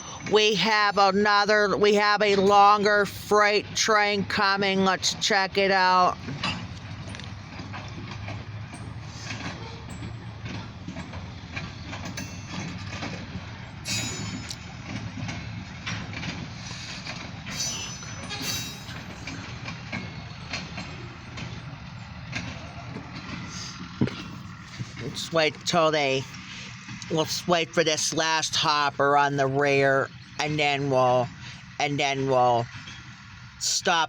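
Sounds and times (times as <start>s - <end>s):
freight train wheels clattering: 0.0s - 34.0s
high-pitched wheel squeals: 13.8s - 14.7s, 17.5s - 19.5s.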